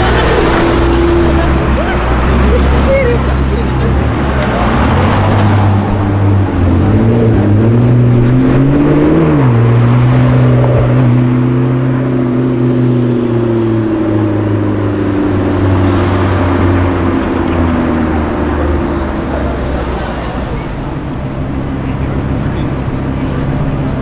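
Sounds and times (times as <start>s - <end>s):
sports car engine revving: 0.0s - 24.0s.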